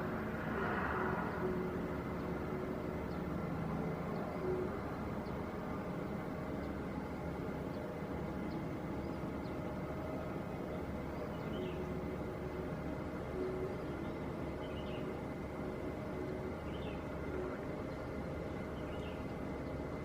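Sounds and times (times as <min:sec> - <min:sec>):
airliner engines running: 0:00.0 - 0:20.0.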